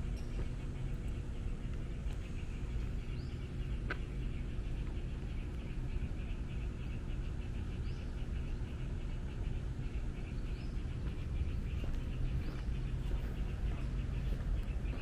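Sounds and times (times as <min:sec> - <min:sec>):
low hum of city traffic: 0:00.0 - 0:15.0
rapid even chirping: 0:00.0 - 0:15.0.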